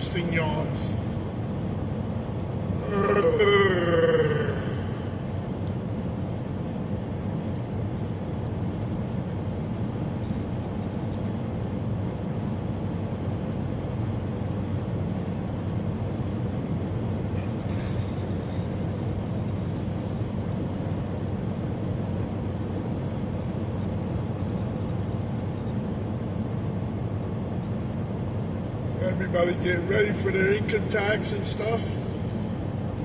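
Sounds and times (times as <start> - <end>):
truck cab road noise drone: 0.0 - 33.0
faint high whine: 14.3 - 33.0.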